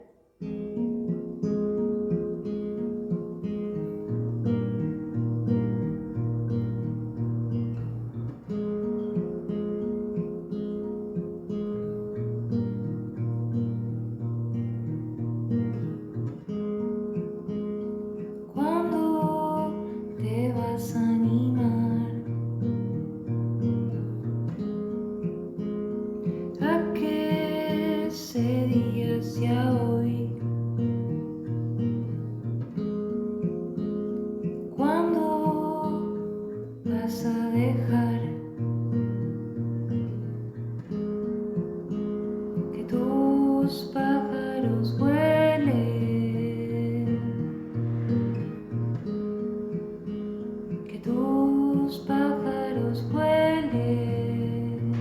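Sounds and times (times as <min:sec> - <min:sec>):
acoustic guitar strumming: 0:00.0 - 0:55.0.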